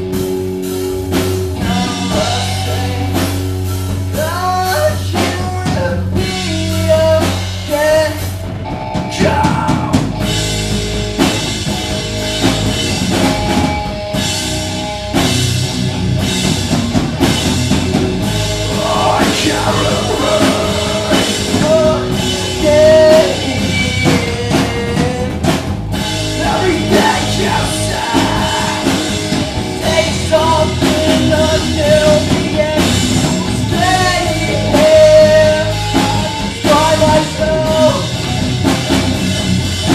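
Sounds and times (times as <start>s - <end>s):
drum kit: 0.0s - 39.9s
guitars: 0.0s - 39.9s
person singing: 18.7s - 25.5s, 26.3s - 38.1s.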